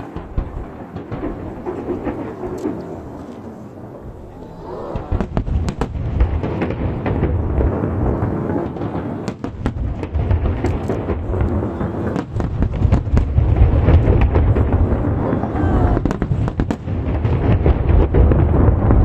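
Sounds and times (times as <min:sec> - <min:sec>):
fireworks booming: 0:00.0 - 0:19.0
fireworks crackling: 0:00.0 - 0:19.0.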